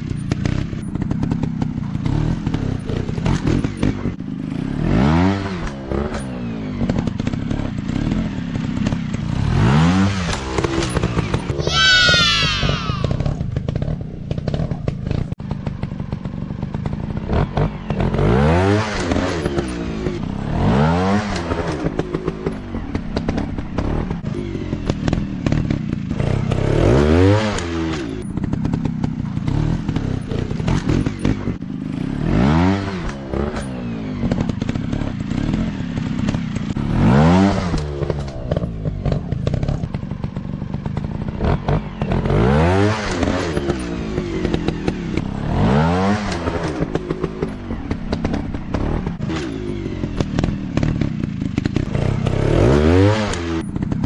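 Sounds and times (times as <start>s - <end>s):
dirt bike engines revving: 9.5s - 13.4s.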